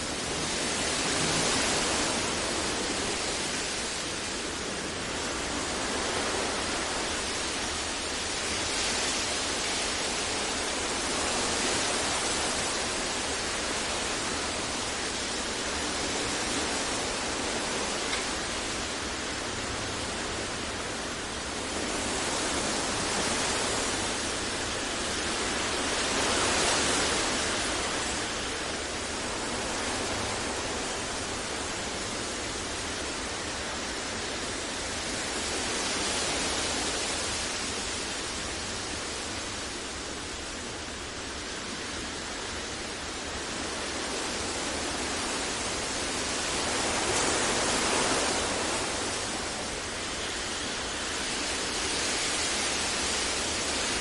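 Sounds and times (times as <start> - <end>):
steady synthetic hiss: 0.0 - 54.0.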